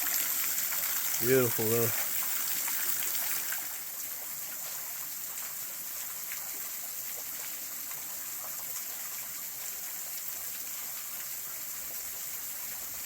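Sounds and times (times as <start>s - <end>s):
faint water drips: 0.0s - 13.0s
small waterfall splashing: 0.0s - 13.0s.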